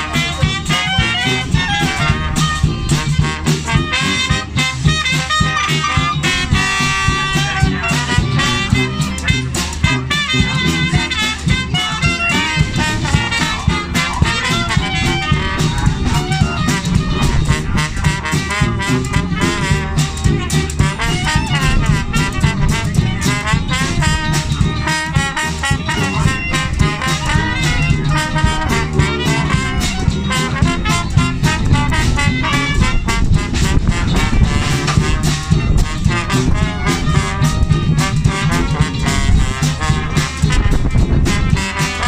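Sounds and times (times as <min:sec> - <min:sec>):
jazz band playing swing: 0:00.0 - 0:42.0.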